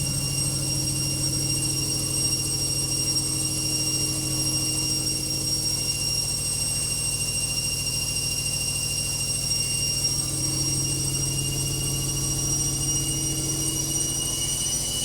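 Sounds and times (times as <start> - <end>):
rumble of shaking machine: 0.0 - 6.2, 10.2 - 15.0
high-pitched motor whine: 0.0 - 15.0.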